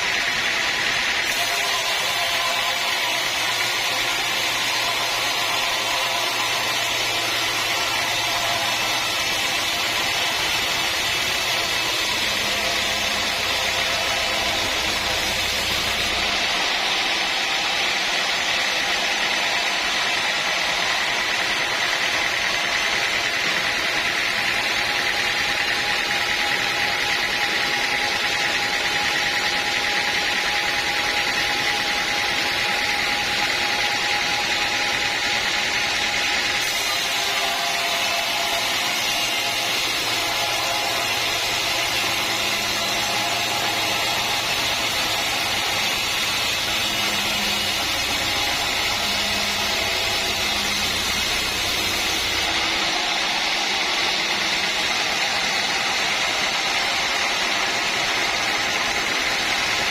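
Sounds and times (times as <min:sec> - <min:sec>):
woodworking machinery whine: 0:00.0 - 0:59.9.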